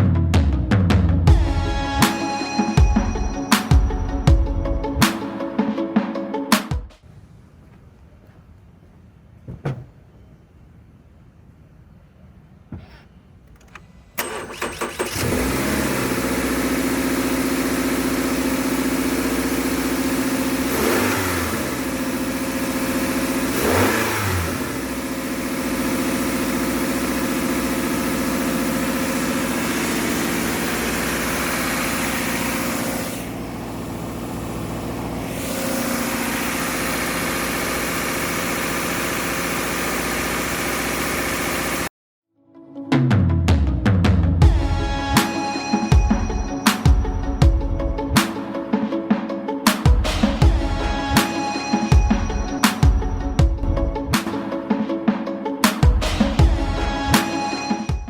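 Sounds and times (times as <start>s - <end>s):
car engine idling: 12.7s - 41.9s
car engine revving: 12.8s - 41.9s
starter cranking engine: 12.8s - 41.9s.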